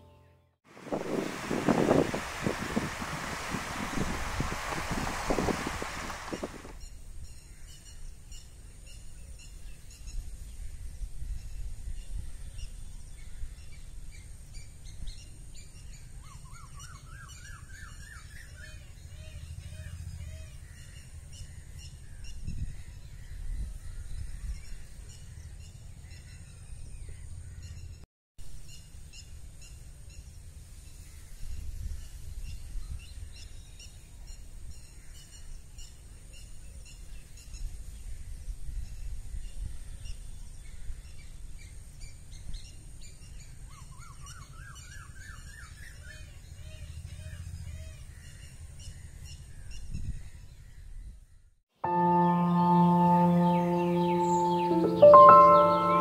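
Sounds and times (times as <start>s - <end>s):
birds chirping: 0.0s - 6.8s, 51.8s - 56.0s
wind rumble on microphone: 0.7s - 7.2s, 10.2s - 14.1s, 21.8s - 25.1s, 31.4s - 33.7s, 49.6s - 51.2s.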